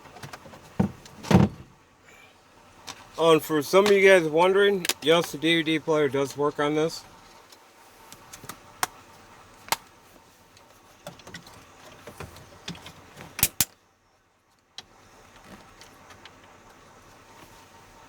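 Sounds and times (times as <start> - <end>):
sharp clicks and light taps: 4.8 - 5.4, 7.5 - 9.0.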